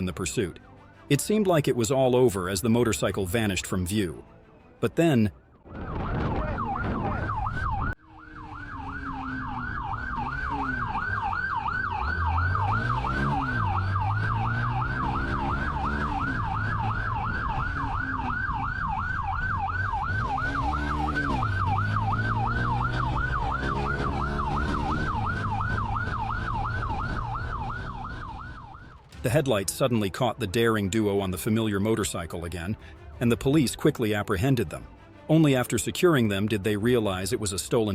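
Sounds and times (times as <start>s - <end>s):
police siren yelping: 5.7s - 29.1s.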